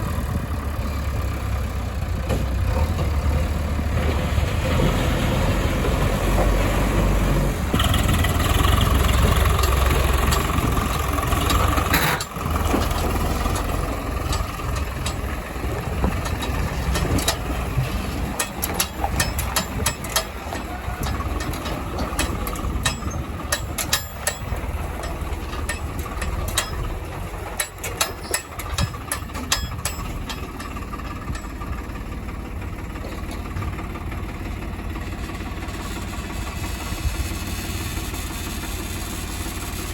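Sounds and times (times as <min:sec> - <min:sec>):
heavy diesel engine running: 0:00.0 - 0:39.9
sharp clicks and clanks: 0:07.8 - 0:31.9.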